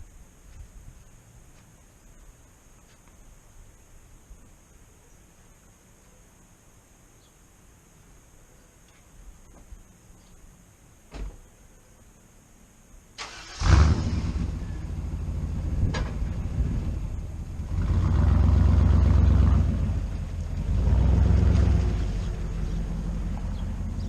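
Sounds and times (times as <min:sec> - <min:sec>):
car engine fast idle: 0:13.2 - 0:14.7
car engine cranking and starting: 0:13.2 - 0:16.4.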